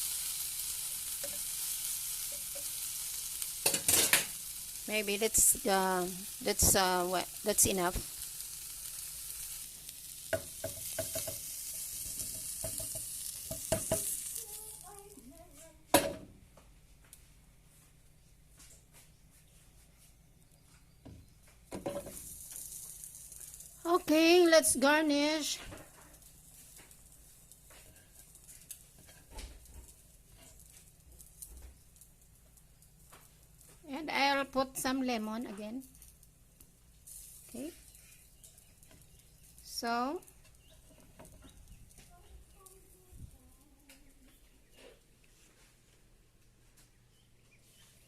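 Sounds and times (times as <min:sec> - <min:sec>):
scallops sizzling in a pan: 0:00.0 - 0:15.4, 0:21.7 - 0:35.2, 0:35.8 - 0:43.0
utensil tapping against a pan: 0:10.3 - 0:14.1.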